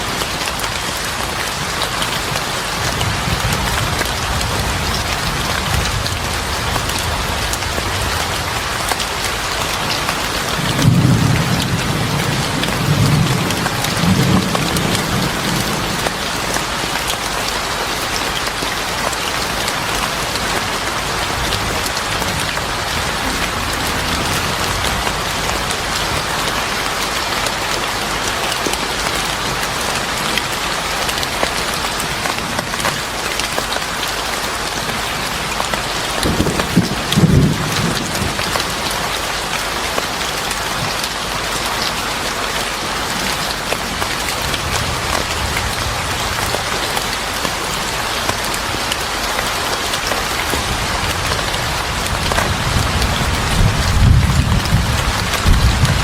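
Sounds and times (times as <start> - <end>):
heavy rainfall: 0.0 - 56.0
thunder rumbling: 21.1 - 26.8, 36.2 - 39.0, 50.5 - 56.0.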